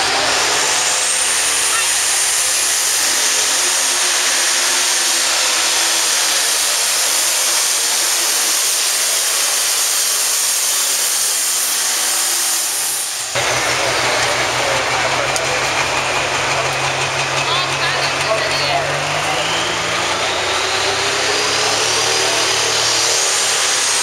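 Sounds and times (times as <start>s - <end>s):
tractor diesel engine roaring: 0.0s - 24.0s
engine idling: 13.2s - 24.0s.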